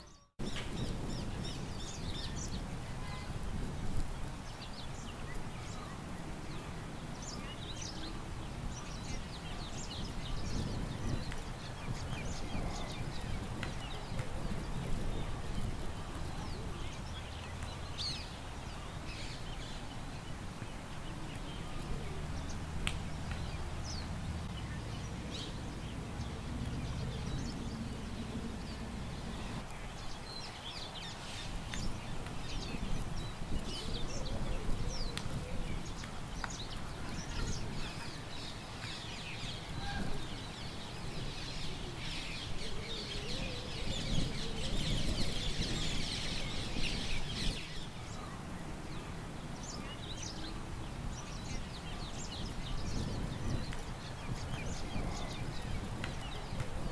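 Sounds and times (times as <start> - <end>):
small birds chirping: 0.0 - 56.9
wind rumble: 0.4 - 5.6, 8.2 - 48.3, 50.5 - 56.9.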